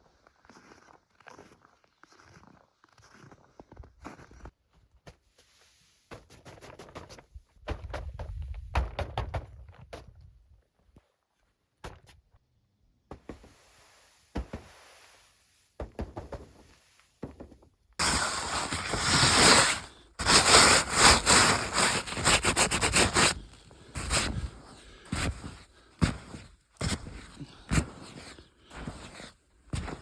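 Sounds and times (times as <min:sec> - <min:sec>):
crunching and scraping: 0:18.0 - 0:30.0.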